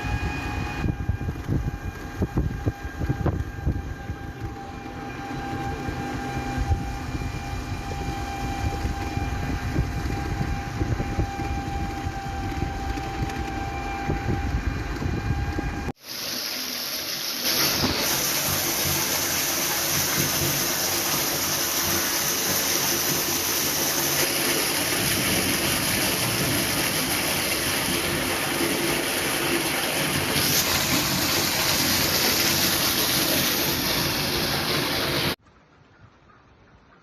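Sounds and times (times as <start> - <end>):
heavy rain pouring: 16.0 - 35.4.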